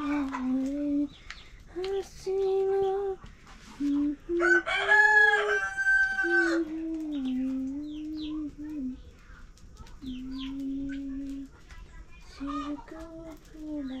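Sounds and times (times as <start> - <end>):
person singing slow tune: 0.0 - 9.2, 9.9 - 11.7, 12.3 - 14.0
rooster crowing: 4.3 - 6.8.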